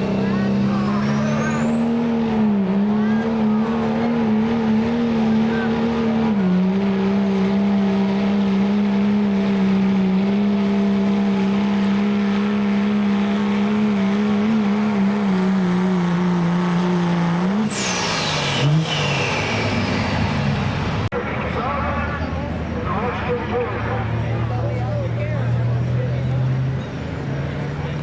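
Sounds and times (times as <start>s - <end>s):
truck engine at high revs: 0.0s - 28.0s
turbo whine: 8.8s - 25.6s.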